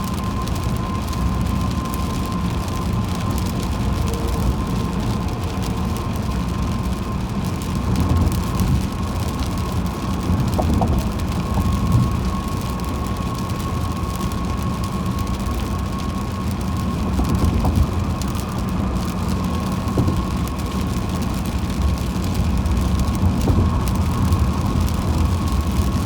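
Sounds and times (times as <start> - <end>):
rain and spray ticking: 0.0 - 26.0
road and tyre rumble: 0.0 - 26.0.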